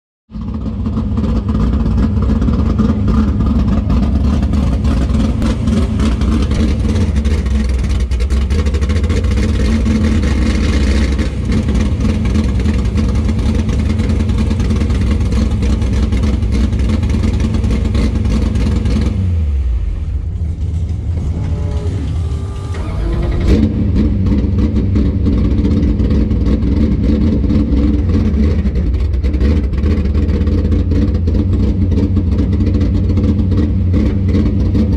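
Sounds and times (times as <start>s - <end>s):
race car engine idling: 0.3s - 34.9s.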